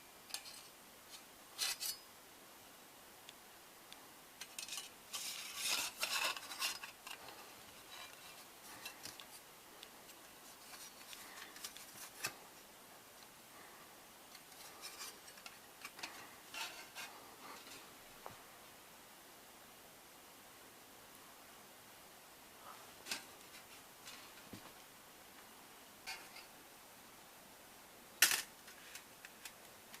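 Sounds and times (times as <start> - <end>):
sheet metal parts clinking: 4.4 - 9.2.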